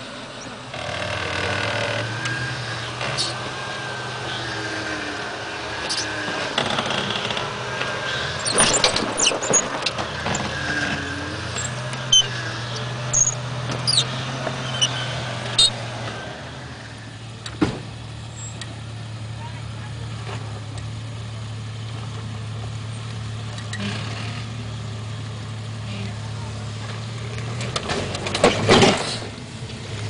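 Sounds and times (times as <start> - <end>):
vehicle engine running: 0.0 - 30.0
knocks and clatter: 5.9 - 12.2, 27.4 - 29.3.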